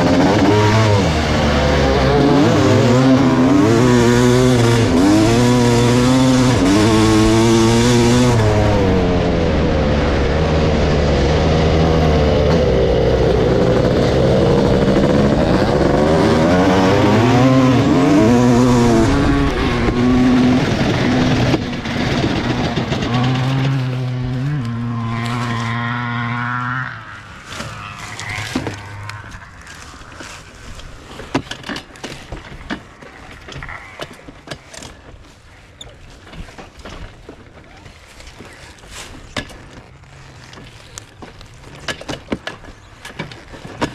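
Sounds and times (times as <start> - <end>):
dirt bike engine revving: 0.0 - 35.1.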